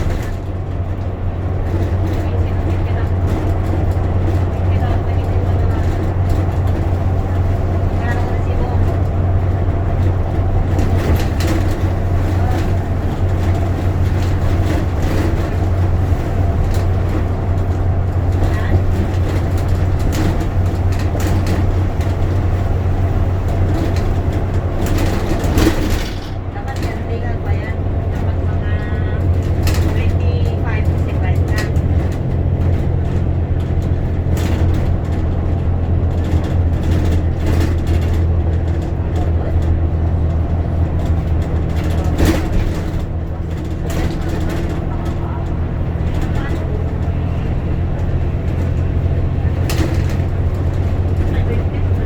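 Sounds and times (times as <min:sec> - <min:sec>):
bus engine drone: 0:00.0 - 0:52.0
brief rattles: 0:23.5 - 0:27.0.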